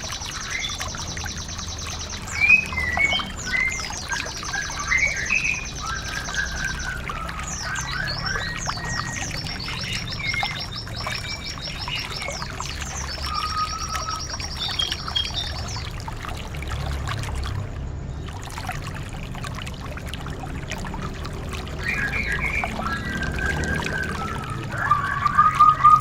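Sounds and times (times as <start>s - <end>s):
bird trilling and chirping: 0.0s - 15.9s, 21.8s - 26.0s
running water trickling: 0.0s - 26.0s.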